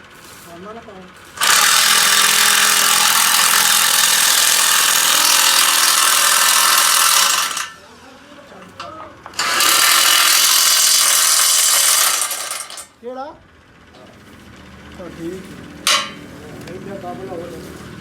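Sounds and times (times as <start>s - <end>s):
power tool running: 0.0s - 13.0s.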